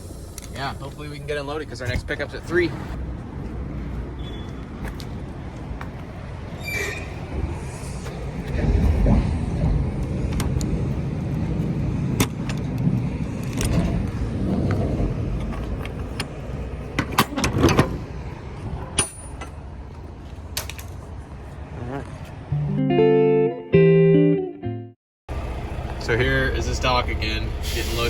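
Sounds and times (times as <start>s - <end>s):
truck engine running: 7.2s - 21.5s, 25.3s - 28.0s.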